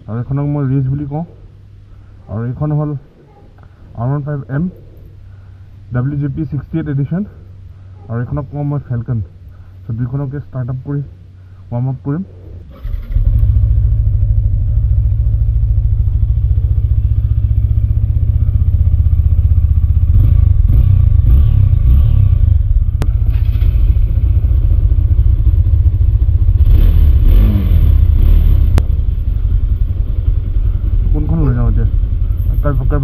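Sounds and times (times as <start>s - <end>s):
motorcycle engine idling and revving: 12.8s - 33.0s.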